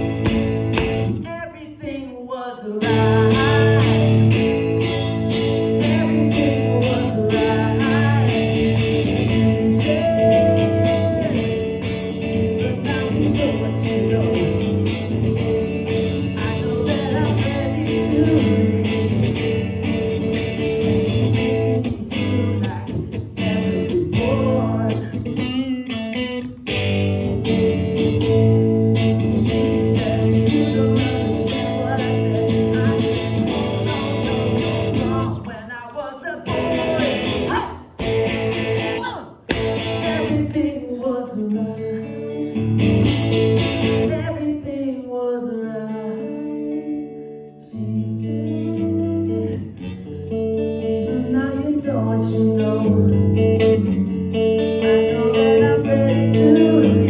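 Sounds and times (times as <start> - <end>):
rock band playing guitar-led music: 0.0 - 1.2, 2.8 - 35.4, 36.5 - 40.6, 42.6 - 44.2, 52.4 - 57.0.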